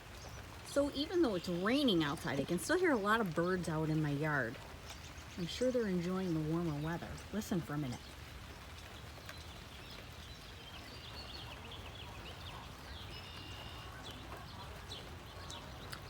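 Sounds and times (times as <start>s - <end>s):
birds chirping: 0.0s - 16.0s
rain patter: 0.0s - 16.0s.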